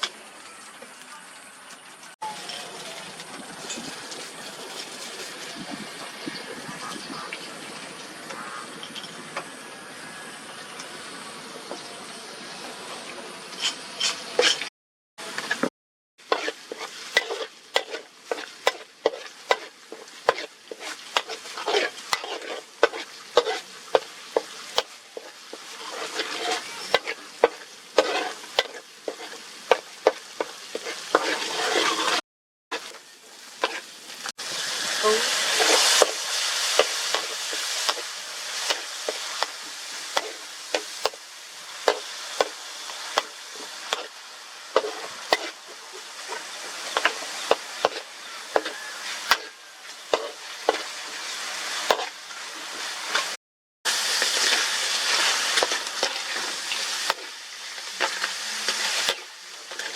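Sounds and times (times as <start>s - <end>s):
crab sizzling in hot oil: 0.0s - 12.3s, 13.5s - 59.9s
metal utensil scraping a pan: 13.5s - 33.0s, 33.6s - 33.9s, 34.6s - 53.4s, 54.1s - 59.9s.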